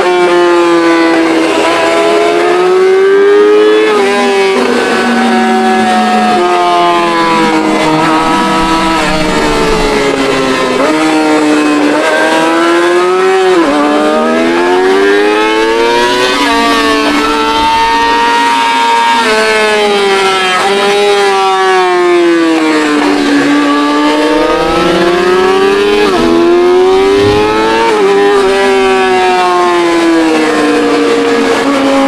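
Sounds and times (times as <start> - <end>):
motorcycle engine accelerating hard: 0.0 - 32.0.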